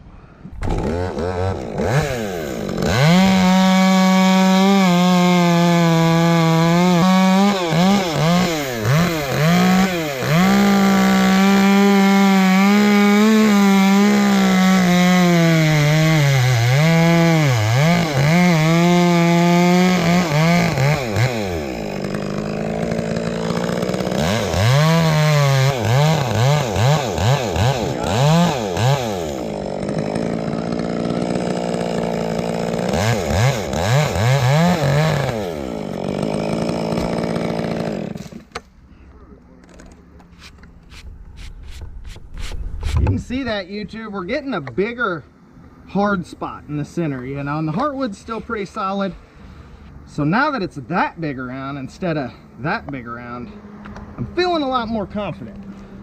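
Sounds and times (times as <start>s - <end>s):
chainsaw cutting wood: 0.6s - 38.8s, 39.7s - 43.9s.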